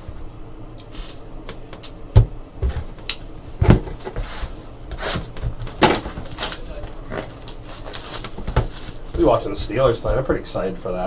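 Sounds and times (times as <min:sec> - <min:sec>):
card packs rustling: 0:05.0 - 0:09.8.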